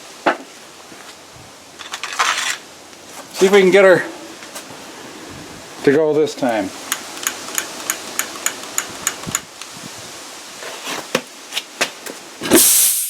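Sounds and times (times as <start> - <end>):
spark igniter clicking: 6.8 - 9.7
vapour igniting whoosh: 12.5 - 13.0.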